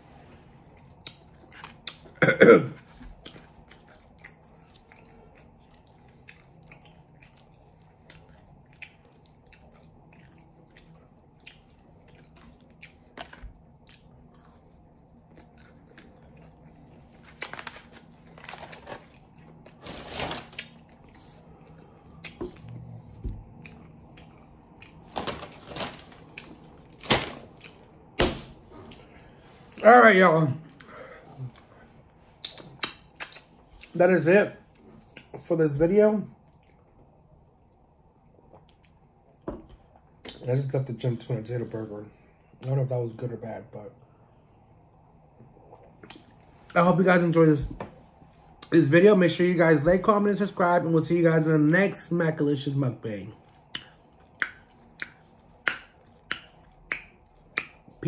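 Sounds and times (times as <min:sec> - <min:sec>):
person chewing fries: 0:00.5 - 0:02.2, 0:02.8 - 0:28.2, 0:30.7 - 0:34.0, 0:53.4 - 0:58.0
paper bag rustling: 0:17.4 - 0:20.6, 0:25.1 - 0:27.5
wet mouth clicks and smacks: 0:32.4 - 0:33.9, 0:53.6 - 0:58.0.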